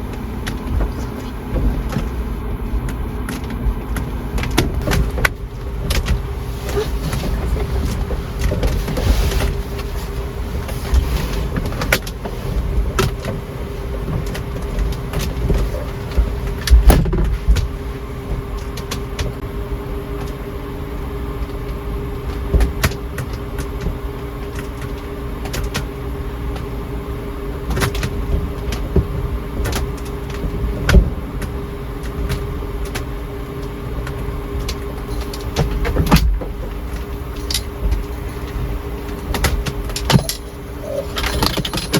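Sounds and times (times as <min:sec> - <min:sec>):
knocks and rattles of shell: 0:39.3 - 0:41.9.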